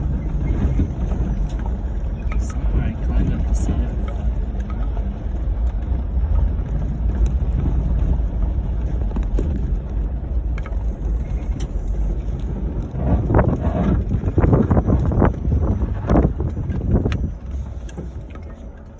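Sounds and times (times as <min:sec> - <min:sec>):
car engine and tyres on dirt: 0:00.0 - 0:18.9.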